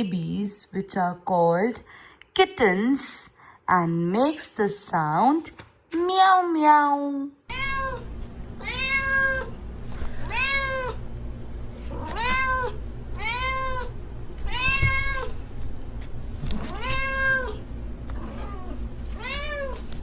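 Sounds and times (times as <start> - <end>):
cat meowing: 7.5 - 9.6, 10.2 - 11.0, 11.9 - 15.4, 16.5 - 17.6, 18.2 - 19.8.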